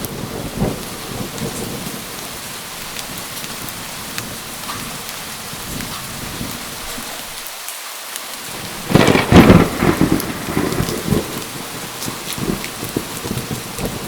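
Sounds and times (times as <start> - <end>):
thunder rumbling: 0.0 - 7.4, 8.5 - 14.0
steady rain falling: 0.0 - 14.0.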